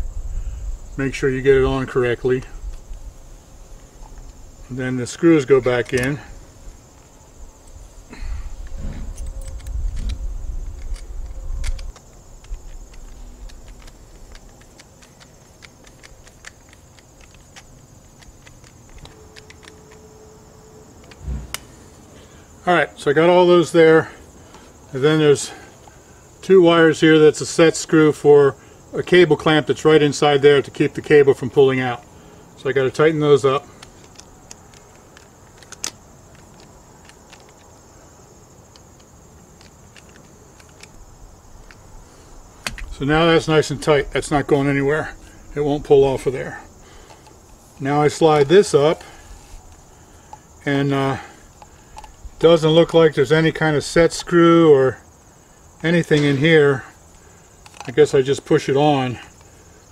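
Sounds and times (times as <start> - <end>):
high insect buzz: 0.0 - 26.4, 28.3 - 59.9
screwdriver clicking and scraping: 8.6 - 20.1, 33.8 - 37.8, 38.7 - 41.0.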